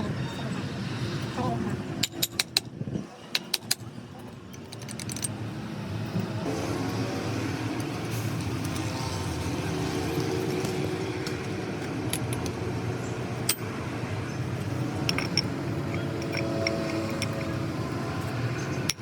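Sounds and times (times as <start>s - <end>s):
metal parts clinking: 4.5s - 5.4s, 11.8s - 12.6s, 14.6s - 19.0s.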